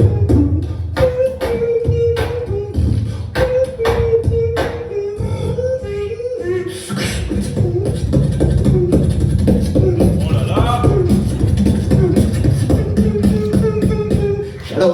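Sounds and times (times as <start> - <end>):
beatboxing snare-like hits: 0.0 - 5.0, 6.8 - 14.4
hummed melody: 0.0 - 14.7
beatboxing heavy bass: 0.0 - 14.8.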